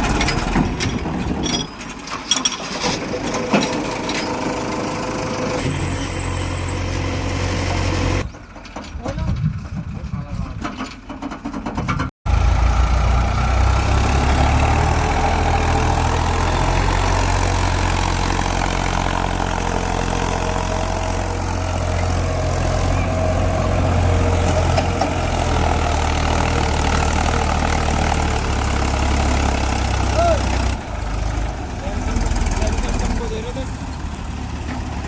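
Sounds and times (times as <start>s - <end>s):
heavy diesel engine running: 2.8s - 11.2s, 12.3s - 35.0s.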